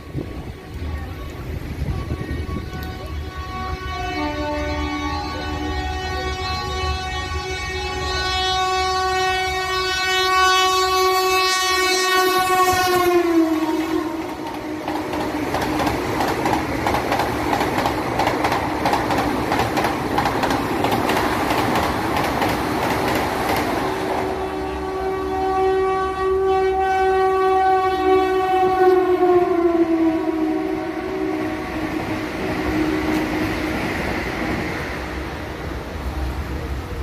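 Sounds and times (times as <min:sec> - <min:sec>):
train horn: 0:00.0 - 0:16.7, 0:23.8 - 0:35.3
train wheels clattering: 0:14.1 - 0:24.4.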